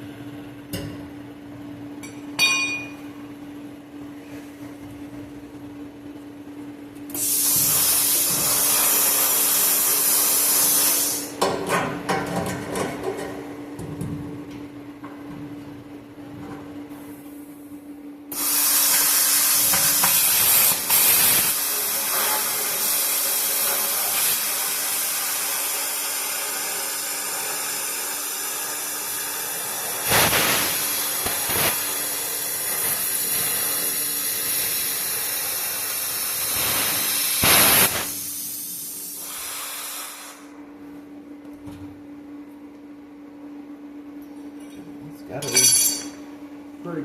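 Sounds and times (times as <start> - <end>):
plasma cutter hissing: 7.1 - 11.4, 18.3 - 40.5.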